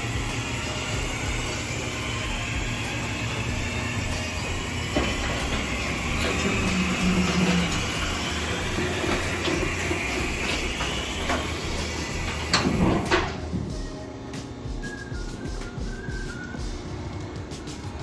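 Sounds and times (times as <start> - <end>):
loud hiss: 0.0 - 16.8
metallic knocks and clatter: 4.9 - 13.8.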